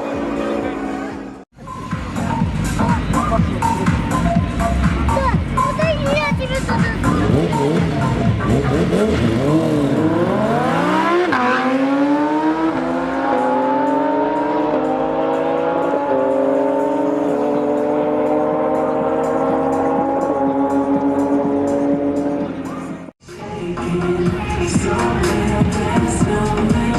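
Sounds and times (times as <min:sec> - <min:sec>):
engine accelerating through gears: 0:07.0 - 0:23.1.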